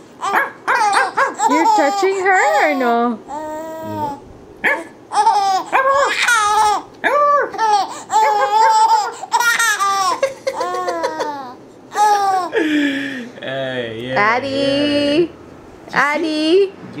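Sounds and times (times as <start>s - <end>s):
baby giggling: 0.2s - 4.2s, 5.1s - 12.8s.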